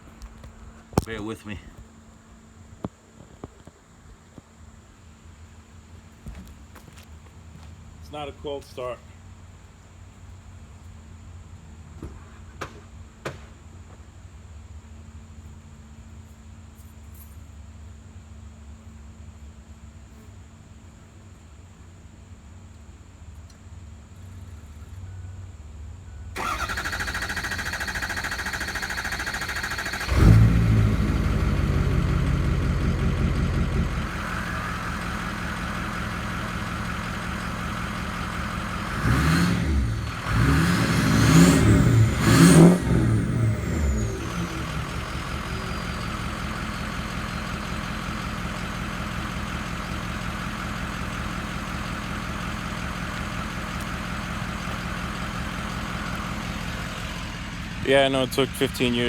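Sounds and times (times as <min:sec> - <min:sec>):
diesel engine cranking and idling: 0:26.3 - 0:59.0
engine throttle revs: 0:26.4 - 0:49.0.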